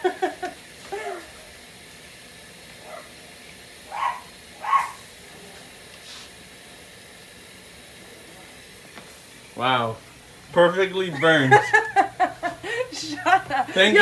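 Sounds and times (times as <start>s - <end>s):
pan sizzling: 0.0s - 14.0s
dog barking: 2.8s - 3.2s, 3.8s - 5.1s.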